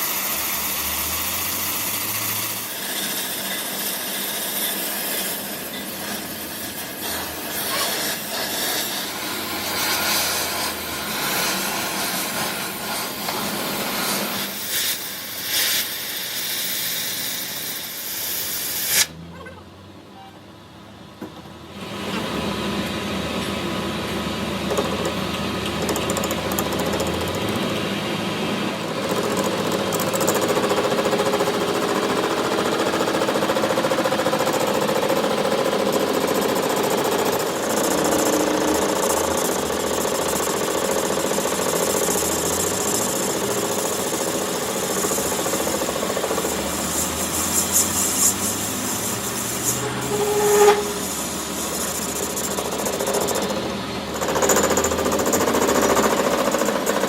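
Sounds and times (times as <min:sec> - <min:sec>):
metalworking tool running: 0:00.0 - 0:19.1, 0:22.0 - 0:57.0.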